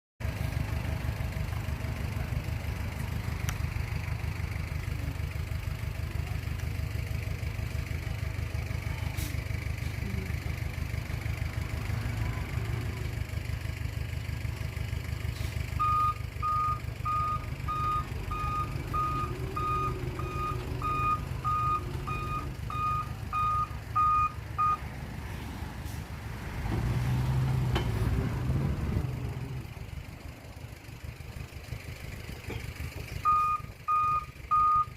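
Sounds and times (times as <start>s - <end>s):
diesel machinery running: 0.2s - 34.9s
reversing alarm beeping: 15.8s - 24.8s, 33.2s - 34.9s.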